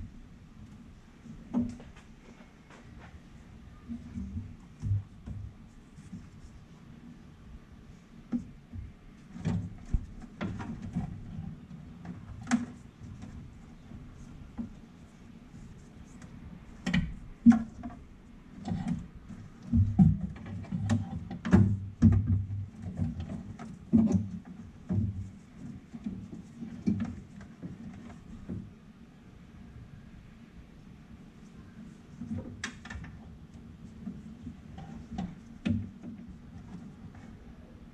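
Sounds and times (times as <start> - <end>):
clicks and clatter of hand work: 1.4 - 3.3, 8.3 - 28.7, 32.1 - 37.9.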